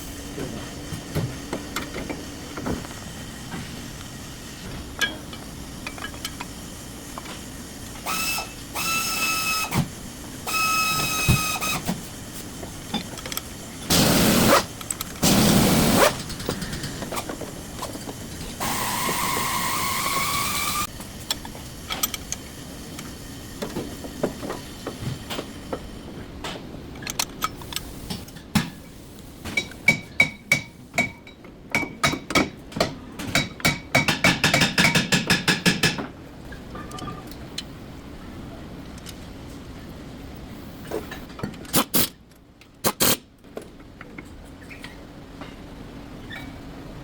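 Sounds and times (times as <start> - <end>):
power tool whine: 8.0 - 9.8, 18.6 - 20.9
tool bursts: 8.0 - 9.9, 13.9 - 17.3, 18.6 - 20.9.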